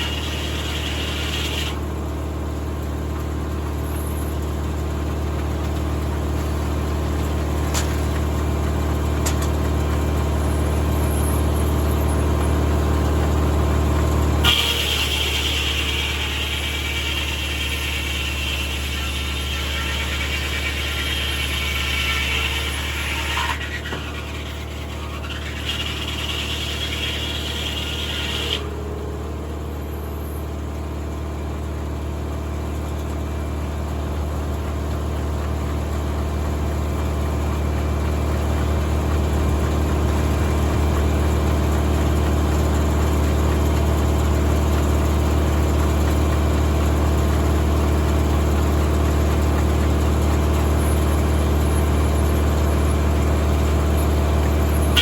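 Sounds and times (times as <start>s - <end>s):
circular saw whine: 0.0s - 2.0s, 14.4s - 33.6s, 46.8s - 55.0s
tractor engine hum: 0.0s - 55.0s.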